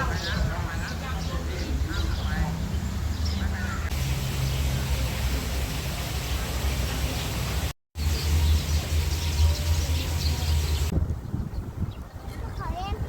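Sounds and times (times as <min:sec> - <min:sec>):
even hiss: 0:03.9 - 0:10.9.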